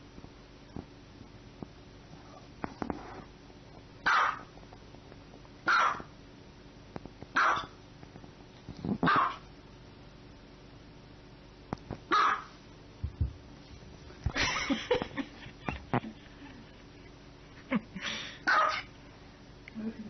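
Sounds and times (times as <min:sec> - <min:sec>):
small dog yapping: 0:04.0 - 0:04.5, 0:05.7 - 0:06.1, 0:07.4 - 0:07.8, 0:09.0 - 0:09.5, 0:12.1 - 0:12.6, 0:18.5 - 0:18.9.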